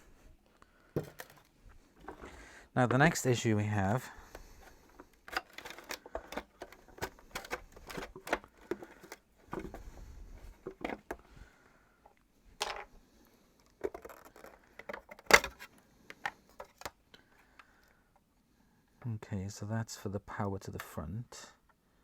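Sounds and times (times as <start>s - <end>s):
vacuum cleaner parts clicking: 1.0s - 2.4s, 4.2s - 9.9s, 13.6s - 17.0s.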